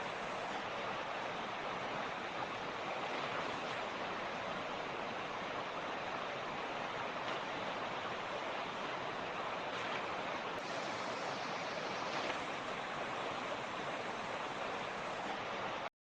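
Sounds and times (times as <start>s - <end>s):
creek water rushing over stones: 0.0s - 15.9s.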